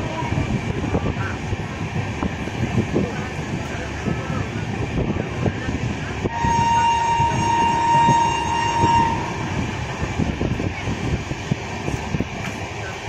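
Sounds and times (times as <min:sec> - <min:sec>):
train rumbling on rails: 0:00.0 - 0:13.0
train horn blast: 0:06.2 - 0:09.7.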